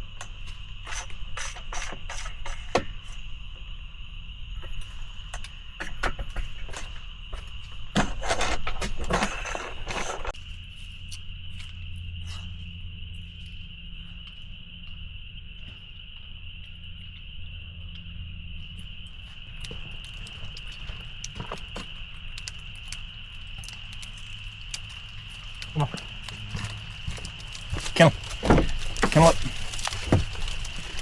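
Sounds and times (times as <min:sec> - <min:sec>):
night insects or frogs calling: 0:00.0 - 0:31.0
loud rustling: 0:24.5 - 0:31.0.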